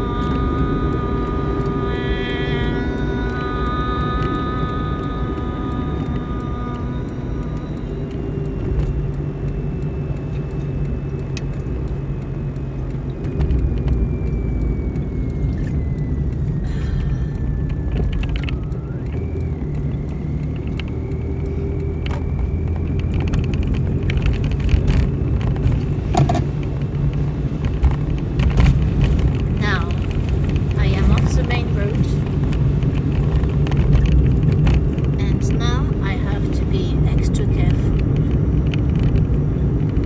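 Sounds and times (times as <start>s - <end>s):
thin whine: 0.0s - 40.0s
vehicle engine rumble: 0.0s - 40.0s.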